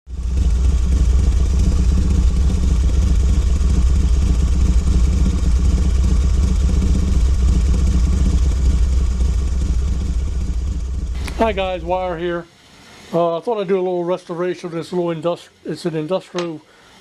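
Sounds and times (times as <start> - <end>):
motor rumbling: 0.0 - 13.2.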